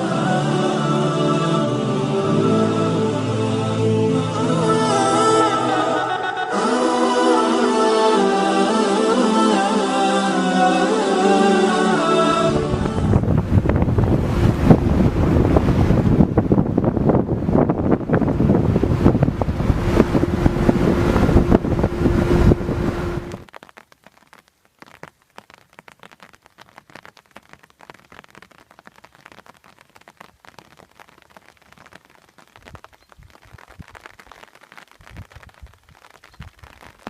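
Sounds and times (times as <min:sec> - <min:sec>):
steady hum: 0:10.9 - 0:16.4, 0:17.9 - 0:23.5
wind buffeting microphone: 0:12.5 - 0:23.4
faint crackling: 0:19.8 - 0:37.0.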